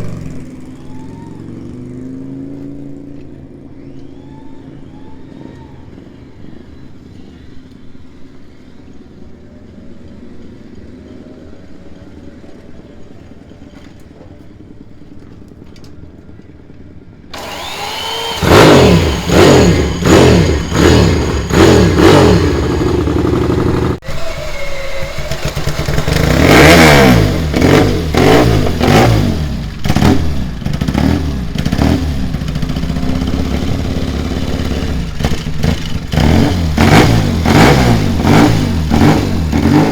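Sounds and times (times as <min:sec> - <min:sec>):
motorcycle engine revving: 0:00.0 - 0:06.2, 0:17.3 - 0:39.9
motorcycle engine running: 0:17.2 - 0:39.9.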